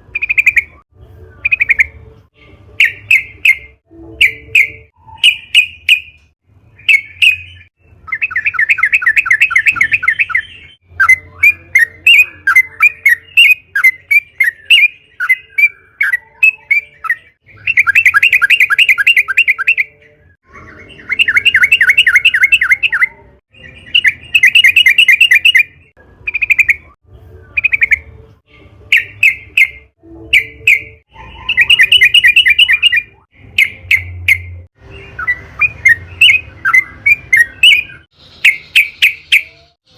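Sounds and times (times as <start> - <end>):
bulbul chirping and chattering: 0.0 - 0.8, 1.4 - 2.0, 6.8 - 19.9, 21.0 - 27.0, 27.6 - 28.2, 28.9 - 39.7.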